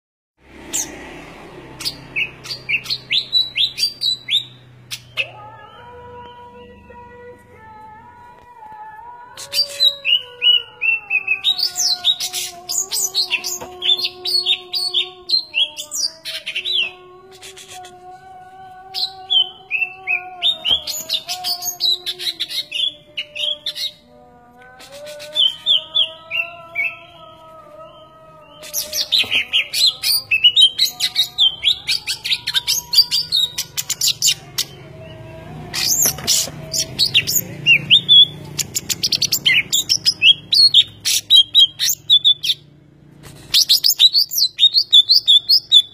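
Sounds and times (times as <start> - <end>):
small bird chirping: 35.8 - 42.6.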